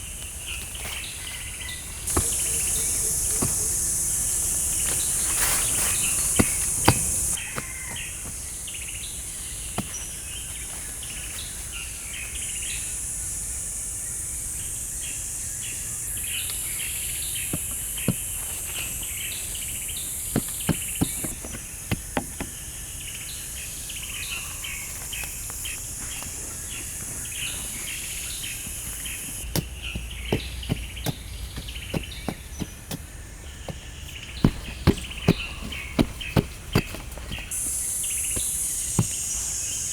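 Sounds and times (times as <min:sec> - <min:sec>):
birds chirping: 0:00.0 - 0:39.9
insects buzzing: 0:00.0 - 0:39.9
sharp knocks: 0:06.0 - 0:07.4, 0:28.6 - 0:37.7.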